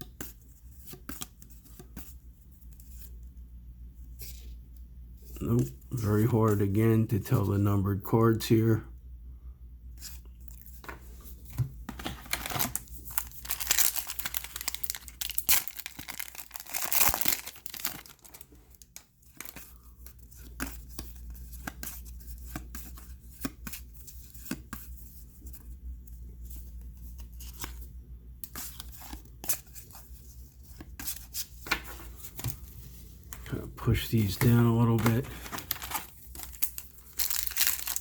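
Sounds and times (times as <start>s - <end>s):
cards being handled: 10.0s - 25.7s, 26.5s - 38.0s
wrapper tearing and crinkling: 12.1s - 19.6s, 35.0s - 38.0s.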